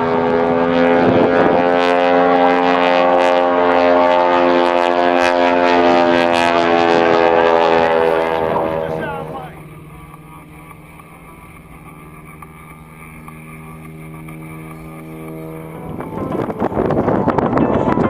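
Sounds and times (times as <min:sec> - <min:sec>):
propeller aircraft droning overhead: 0:00.0 - 0:18.0.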